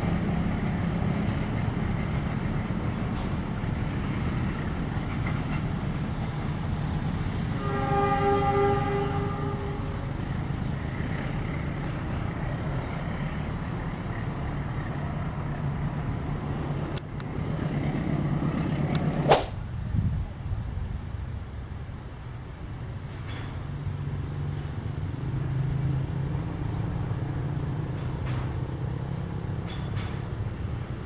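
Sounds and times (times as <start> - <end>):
low engine hum: 0.0 - 31.0
sharp swishing crack: 19.2 - 19.7.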